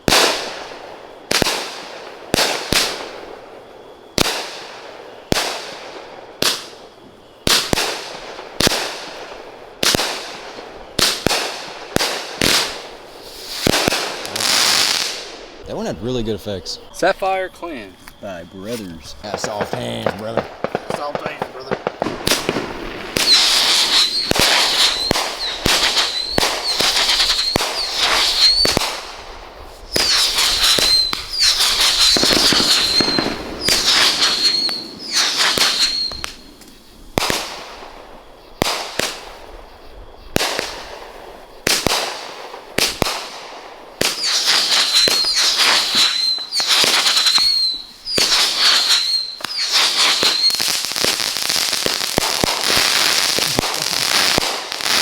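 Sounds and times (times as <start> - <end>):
fireworks shells banging: 17.9 - 28.9, 29.9 - 37.5, 44.0 - 55.0.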